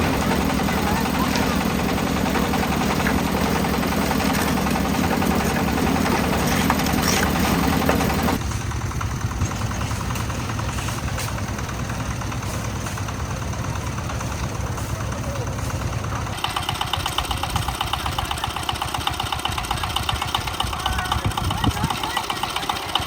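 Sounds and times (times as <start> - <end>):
concrete mixer engine running: 0.0 - 23.0.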